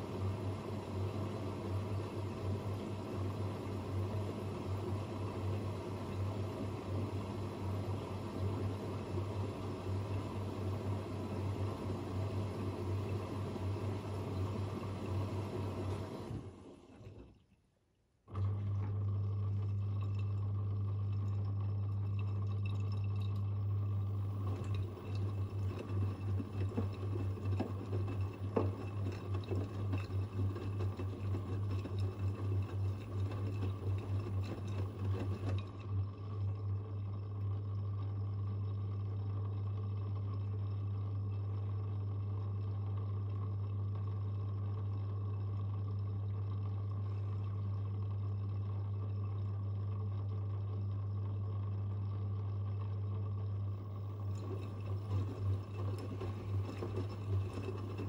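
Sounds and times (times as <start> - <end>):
washing machine humming: 0.0 - 17.6, 18.2 - 58.0
water running: 18.6 - 37.1, 53.7 - 58.0.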